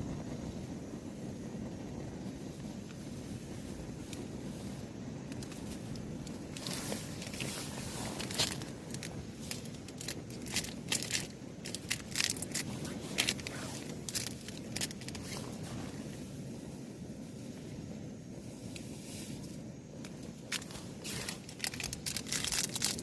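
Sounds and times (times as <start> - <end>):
steady low rush: 0.0 - 22.2
crinkling handling noise: 4.0 - 16.2, 18.7 - 23.0.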